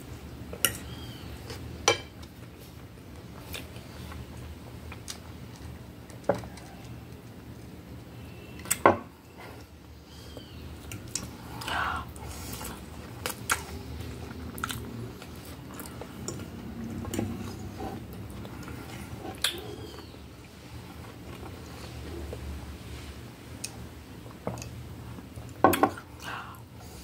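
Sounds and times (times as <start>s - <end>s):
person chewing food: 10.4s - 22.6s.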